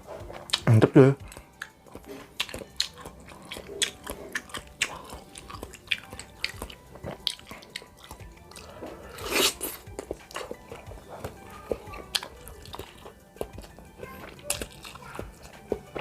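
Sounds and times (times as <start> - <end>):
person chewing food: 0.0 - 16.0
wet mouth clicks and smacks: 1.3 - 8.7.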